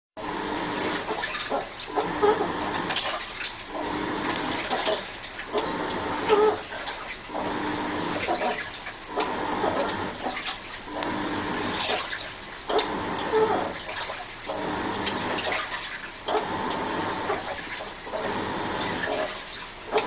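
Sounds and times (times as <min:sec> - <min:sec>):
washing machine swishing water: 0:00.2 - 0:20.0
squeaky whining tone: 0:01.5 - 0:02.7, 0:04.8 - 0:06.7, 0:12.7 - 0:13.8.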